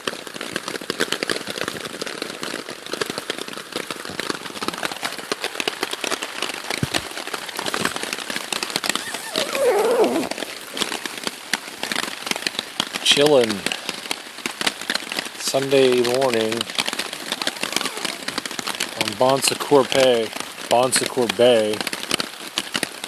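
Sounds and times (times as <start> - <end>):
rain pattering on tarp: 0.0 - 23.0
falling pitched tone: 9.0 - 10.5.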